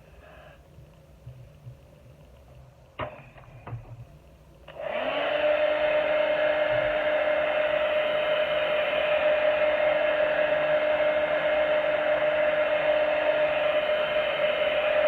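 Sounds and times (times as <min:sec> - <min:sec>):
hair dryer running: 0:04.7 - 0:15.0.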